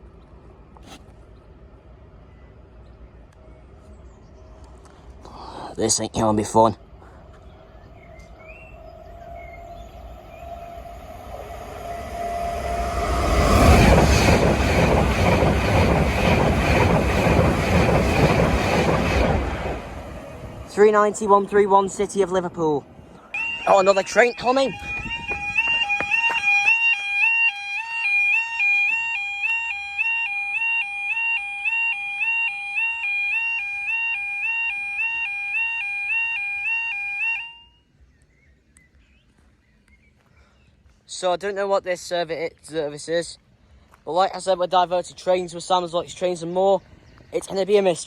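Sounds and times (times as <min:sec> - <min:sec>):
electric train passing at speed: 0:00.0 - 0:05.2, 0:05.8 - 0:37.6
level crossing warning alarm: 0:07.2 - 0:37.8.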